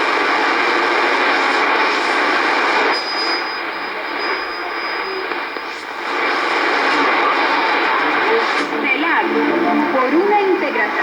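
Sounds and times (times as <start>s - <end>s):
shortwave radio static: 5.3s - 11.0s.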